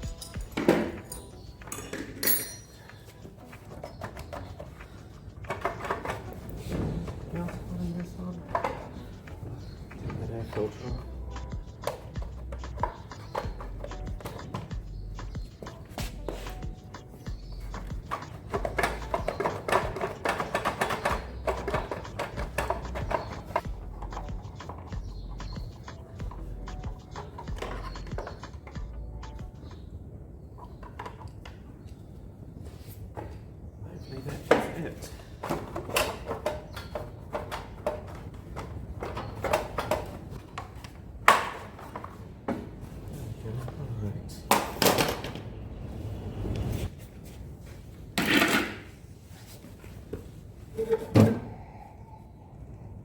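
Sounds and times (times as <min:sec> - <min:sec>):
hand tools clattering on metal: 0:00.0 - 0:14.8, 0:15.4 - 0:26.2, 0:26.8 - 0:29.4.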